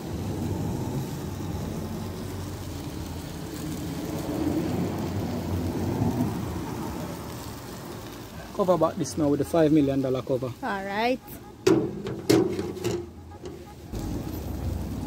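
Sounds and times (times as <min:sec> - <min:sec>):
chicken sizzling and crackling: 0:00.0 - 0:15.0
low rushing rumble: 0:13.9 - 0:15.0.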